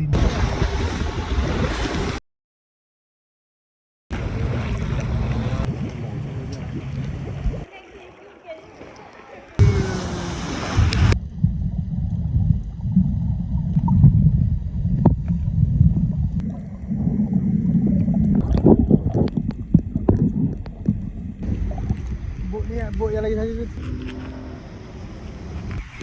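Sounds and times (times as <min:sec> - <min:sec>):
motorboat engine rumble: 0:00.0 - 0:02.2, 0:04.1 - 0:26.0.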